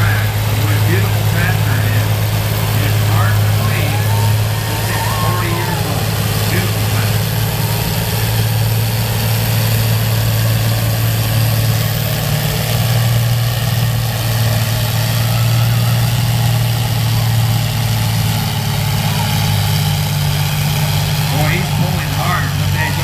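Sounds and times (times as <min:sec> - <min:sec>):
tractor engine running under load: 0:00.0 - 0:23.0.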